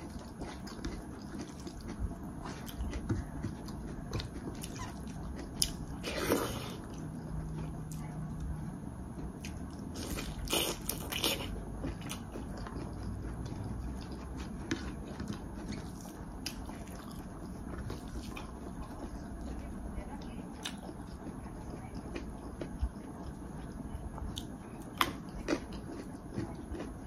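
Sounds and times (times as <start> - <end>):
person chewing food: 0.0 - 27.0.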